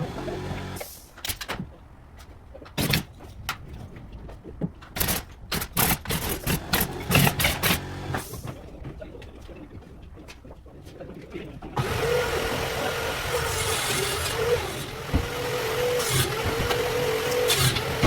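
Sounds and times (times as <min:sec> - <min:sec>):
sharp knocks and bangs: 0:13.6 - 0:18.0.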